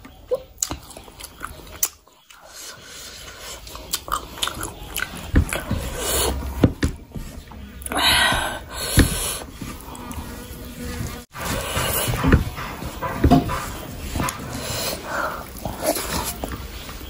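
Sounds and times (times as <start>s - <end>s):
wet chewing and smacking: 0.0s - 2.6s, 3.2s - 6.4s
dull thumps: 5.2s - 9.9s, 10.9s - 14.6s.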